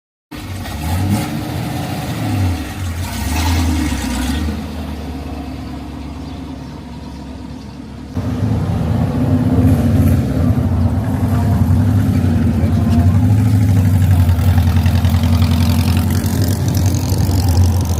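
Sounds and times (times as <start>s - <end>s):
car engine running: 4.2s - 17.9s.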